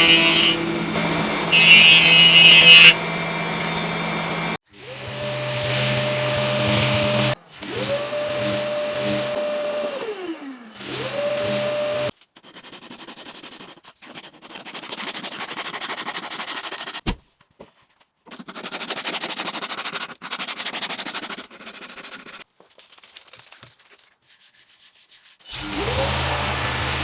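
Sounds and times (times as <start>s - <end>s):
sandpaper scratching on wood: 11.4s - 17.0s, 18.3s - 22.4s, 24.3s - 25.5s.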